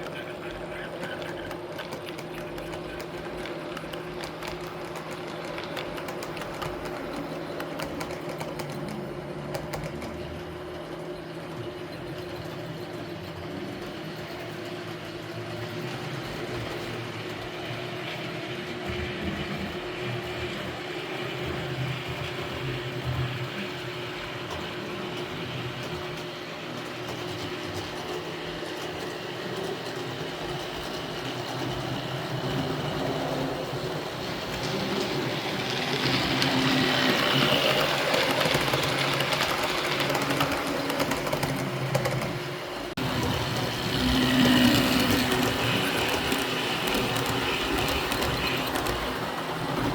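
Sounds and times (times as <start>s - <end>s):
model train motor whir: 34.2s - 42.2s, 43.0s - 49.2s.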